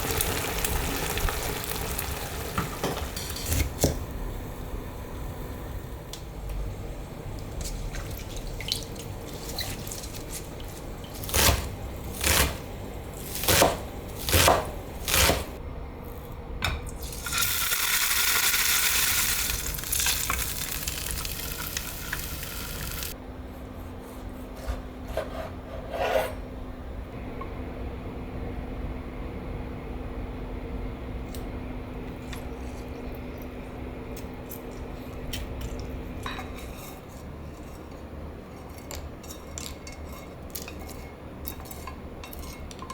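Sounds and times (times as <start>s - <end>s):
utensils and cookware clinking: 2.6s - 3.9s, 34.5s - 42.9s.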